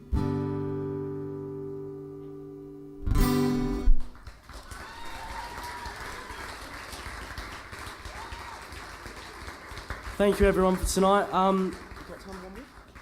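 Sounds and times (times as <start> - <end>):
acoustic guitar chords: 0.0 - 4.2
audience clapping: 3.9 - 13.0.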